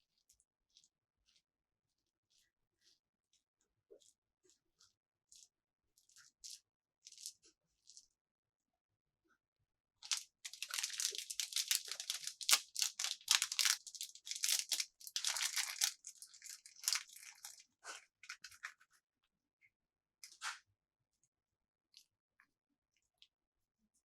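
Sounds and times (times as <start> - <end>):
plastic packaging crinkling: 10.0 - 17.6.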